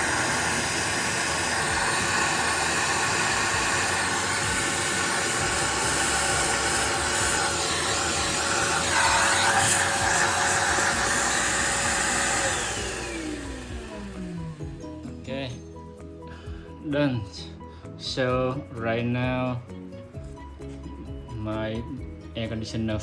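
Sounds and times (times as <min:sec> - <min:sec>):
loud rushing hiss: 0:00.0 - 0:14.6
machine motor humming: 0:00.0 - 0:15.3.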